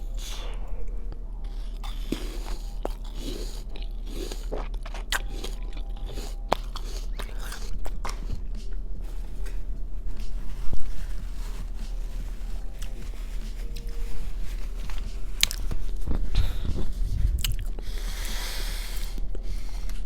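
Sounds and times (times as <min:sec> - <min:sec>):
biting and chewing crunches: 0:01.1 - 0:08.8, 0:14.8 - 0:18.2.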